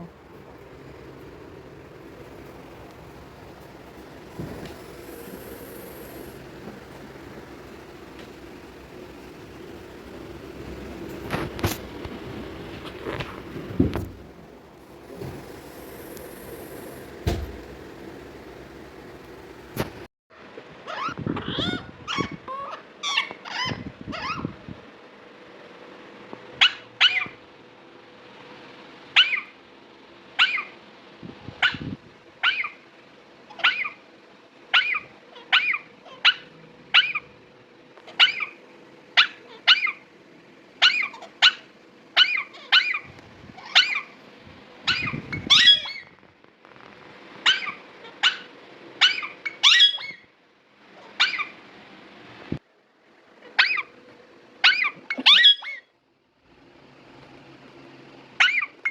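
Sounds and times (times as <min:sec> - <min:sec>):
parrots squawking: 0:47.5 - 0:50.2, 0:51.2 - 0:51.5, 0:54.7 - 0:55.8.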